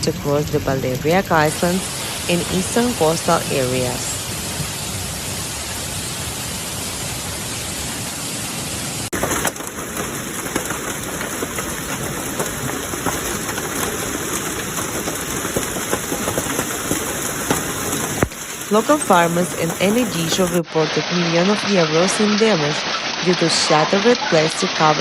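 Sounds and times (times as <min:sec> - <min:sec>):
hailstones ticking on hard surfaces: 0:00.0 - 0:04.7, 0:09.1 - 0:20.6
hail and rain falling: 0:00.0 - 0:25.0.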